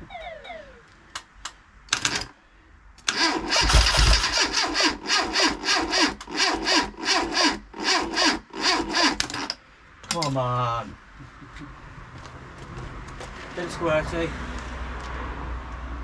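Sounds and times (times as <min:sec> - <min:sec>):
starter motor cranking engine: 0:03.0 - 0:09.6.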